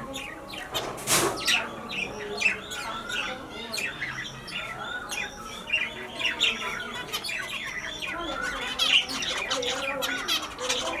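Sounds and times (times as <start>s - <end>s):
finches chirping: 0.0s - 11.0s.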